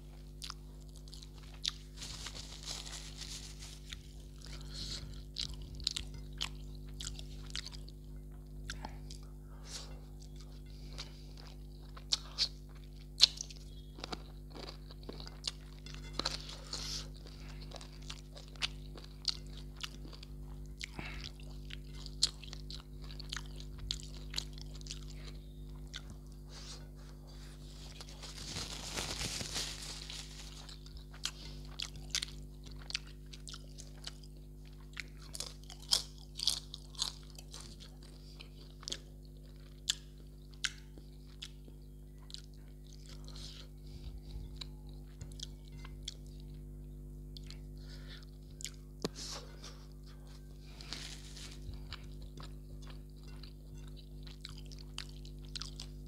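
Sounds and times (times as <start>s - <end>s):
crunchy chewing: 0.0s - 56.0s
low electrical hum: 0.0s - 56.0s
rustling: 1.8s - 4.4s, 27.4s - 30.8s, 50.7s - 51.7s.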